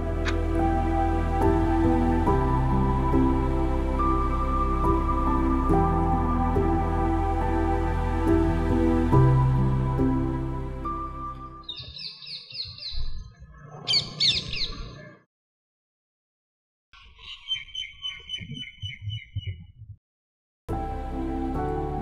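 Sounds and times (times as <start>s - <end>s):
birds chirping: 11.6s - 15.2s, 17.0s - 19.9s.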